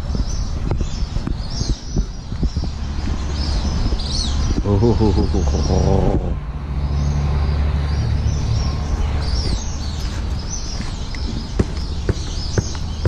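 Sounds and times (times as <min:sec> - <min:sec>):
birds chirping: 0:00.0 - 0:13.0
steady low rumble: 0:00.0 - 0:13.0
sharp taps: 0:10.8 - 0:13.0.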